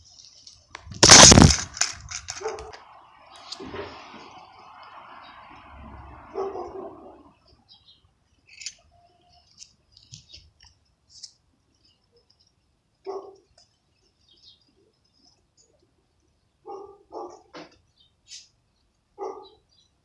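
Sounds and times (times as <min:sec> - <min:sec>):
small birds chirping: 0:07.3 - 0:20.0.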